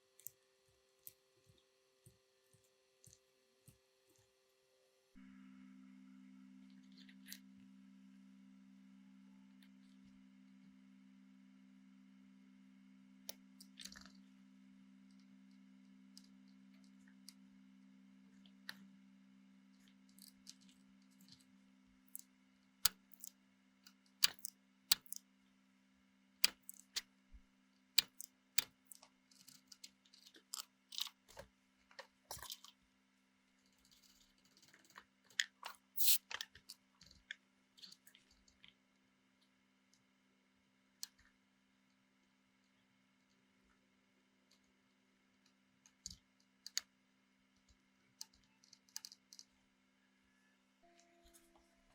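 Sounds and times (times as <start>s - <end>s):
steady low hum: 5.1s - 29.0s
sharp clicks and clatters: 23.9s - 25.2s, 26.4s - 27.1s, 28.0s - 31.4s.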